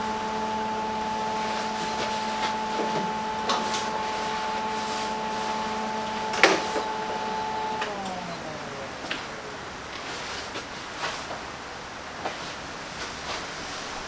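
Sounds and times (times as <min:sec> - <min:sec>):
electric grinder running: 0:00.0 - 0:10.6.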